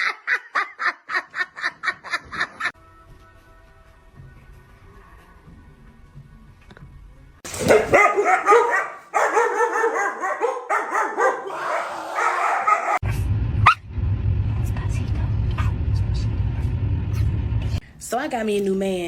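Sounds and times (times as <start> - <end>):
dog yapping: 7.6 - 13.0
low steady rumble: 13.0 - 17.8.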